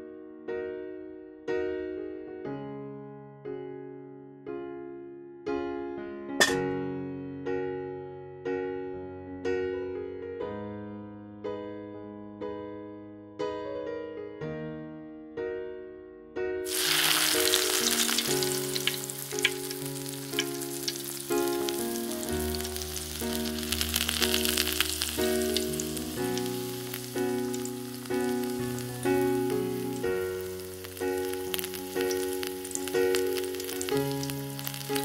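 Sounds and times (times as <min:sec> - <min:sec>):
piano music: 0:00.0 - 0:35.0
food sizzling in hot oil: 0:16.7 - 0:35.0.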